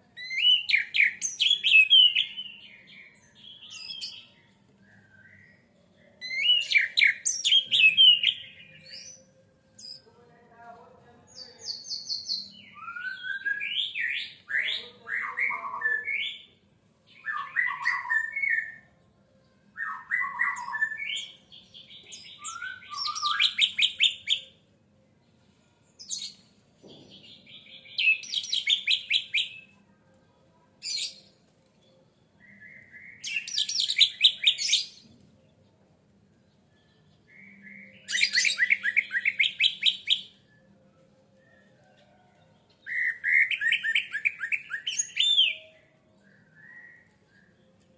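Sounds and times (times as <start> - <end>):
thrush singing whistled phrases: 0.2 - 2.6, 5.1 - 8.8, 12.1 - 14.6, 22.2 - 24.5, 27.8 - 29.7, 32.4 - 35.0, 37.3 - 40.4, 42.9 - 47.4.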